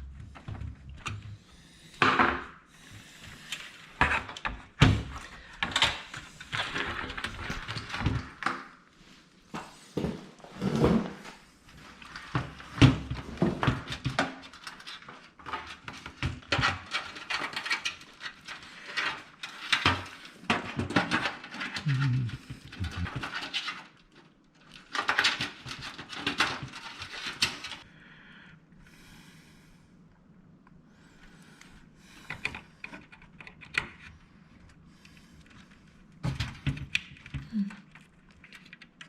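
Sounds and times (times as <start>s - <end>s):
computer parts clicking and rustling: 3.5s - 8.8s, 12.0s - 27.8s, 32.2s - 39.0s.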